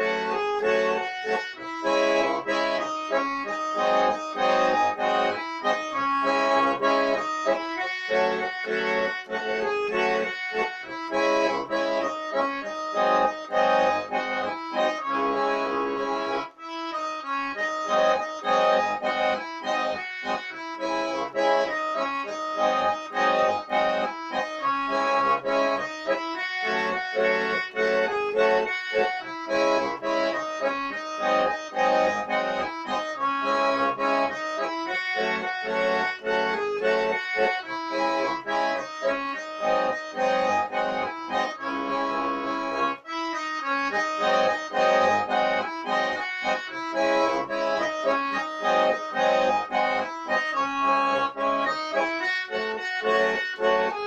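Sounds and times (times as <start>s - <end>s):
accordion melody with chords: 0.0s - 54.0s.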